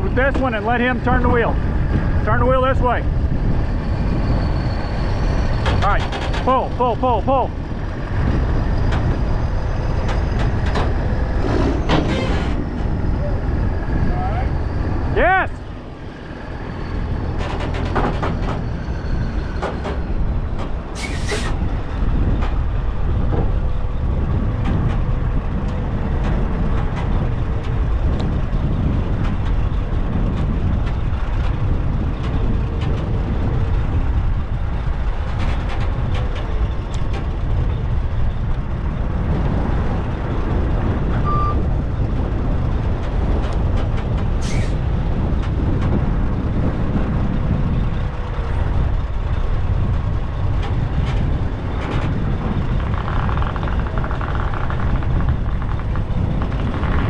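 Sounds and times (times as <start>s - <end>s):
heavy trucks running: 0.0s - 57.0s
wind buffeting microphone: 0.0s - 57.0s
sharp metallic knocks: 16.8s - 21.5s
short beep: 41.2s - 41.6s.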